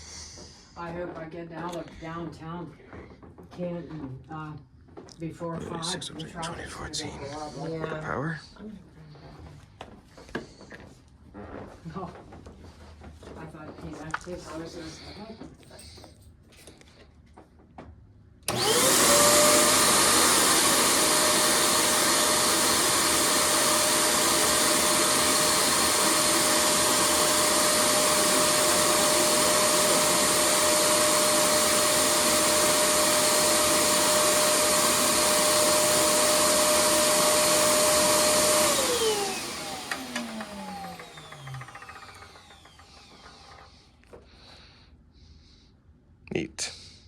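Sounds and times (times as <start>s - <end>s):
vacuum cleaner motor whine: 18.5s - 43.8s.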